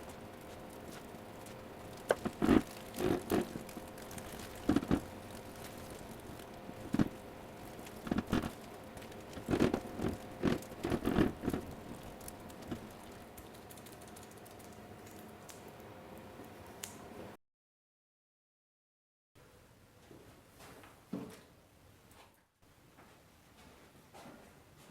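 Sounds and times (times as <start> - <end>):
faint steady hum: 0.0 - 17.4.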